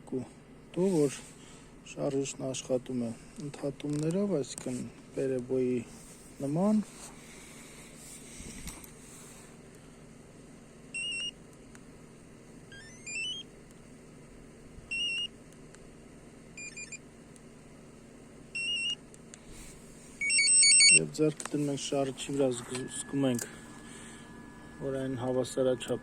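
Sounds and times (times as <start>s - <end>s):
electronic beeps and chirps: 20.2s - 21.0s.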